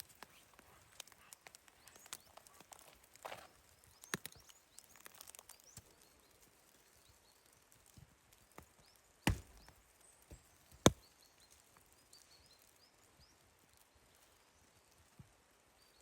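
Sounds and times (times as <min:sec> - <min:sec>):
chopping strikes on wood: 0:09.3 - 0:09.7.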